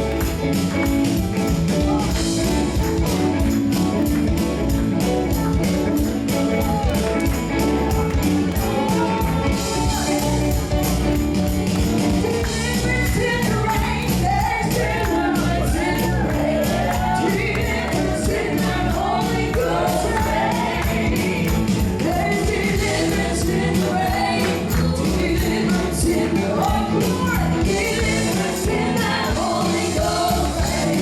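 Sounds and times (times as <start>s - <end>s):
gospel worship music: 0.0s - 31.0s
people singing: 7.9s - 11.1s, 12.3s - 31.0s.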